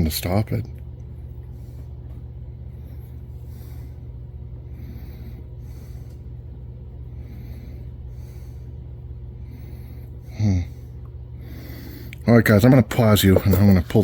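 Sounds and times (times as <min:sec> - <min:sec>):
steady low hum: 0:00.0 - 0:14.0
faint rustling or breathing: 0:01.4 - 0:06.4, 0:07.0 - 0:12.2.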